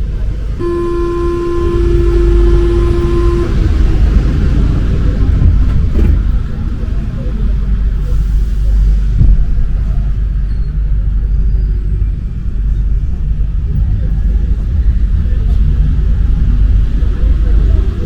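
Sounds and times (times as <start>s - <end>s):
metro train rumbling: 0.0s - 18.0s.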